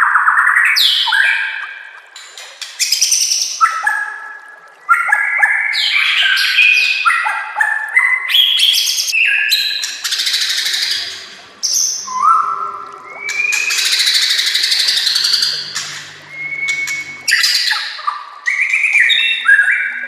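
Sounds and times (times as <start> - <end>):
songbird singing whistled phrases: 8.0 - 20.0.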